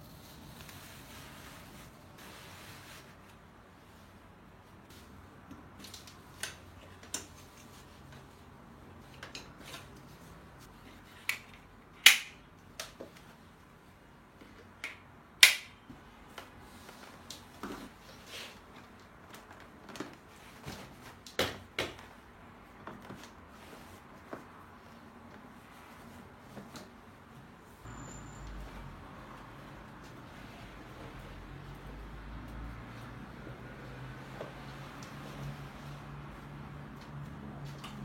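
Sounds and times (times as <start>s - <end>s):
loud sharp snaps: 12.0s - 12.4s, 14.8s - 15.8s.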